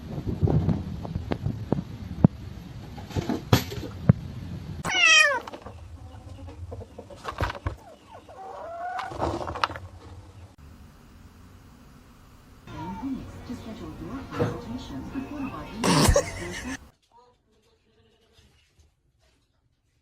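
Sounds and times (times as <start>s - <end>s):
cat meowing: 4.8s - 5.5s.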